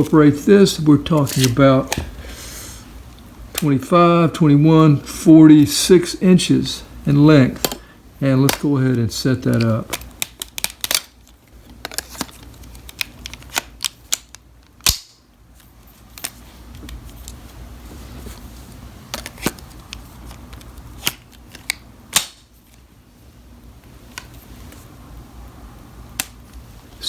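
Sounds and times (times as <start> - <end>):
plastic parts clicking together: 9.5 - 15.2.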